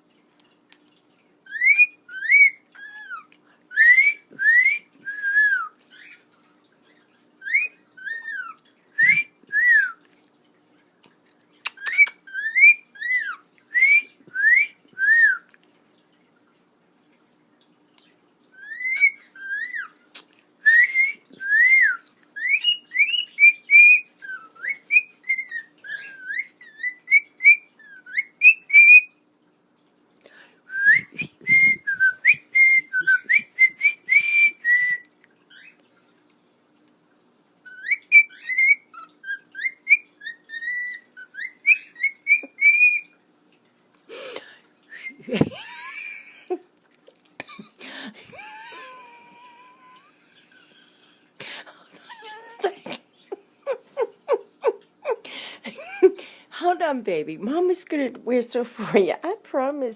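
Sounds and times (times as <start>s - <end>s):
cockatiel whistling a tune: 1.5s - 6.2s, 7.4s - 10.0s, 11.8s - 15.5s, 18.6s - 19.9s, 20.7s - 29.1s, 30.7s - 35.7s, 37.7s - 43.1s.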